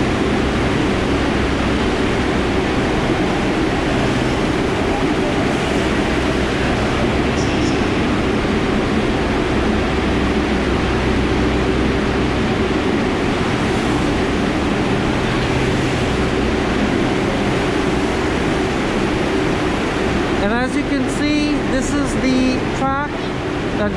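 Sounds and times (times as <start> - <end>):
low hum: 0.0 - 23.9
subway rumbling hiss: 0.0 - 23.9.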